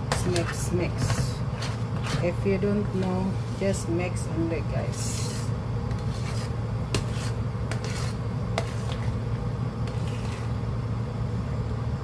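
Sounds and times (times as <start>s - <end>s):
spoon stirring and scraping pot: 0.0s - 3.9s, 4.9s - 10.6s
steady low hum: 0.0s - 12.0s.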